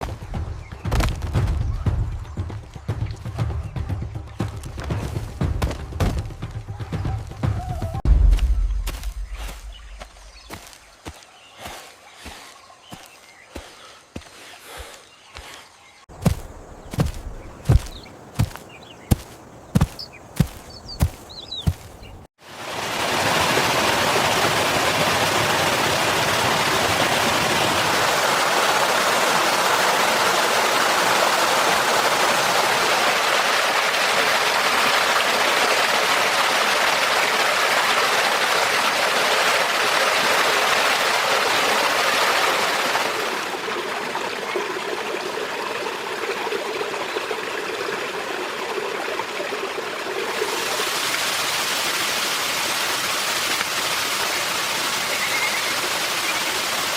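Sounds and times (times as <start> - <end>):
stream of water rushing: 16.1 - 56.9.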